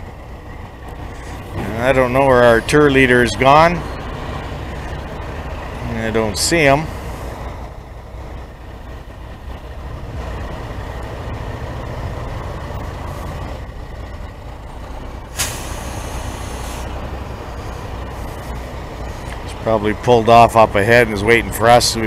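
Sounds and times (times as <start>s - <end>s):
road noise: 0.0s - 22.0s
sudden hiss: 15.3s - 16.9s.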